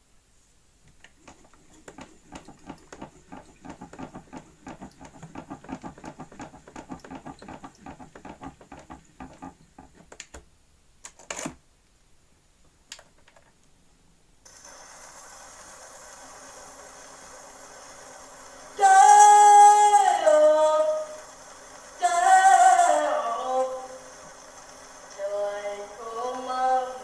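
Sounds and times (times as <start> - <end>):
loud clatter: 1.1 - 10.2.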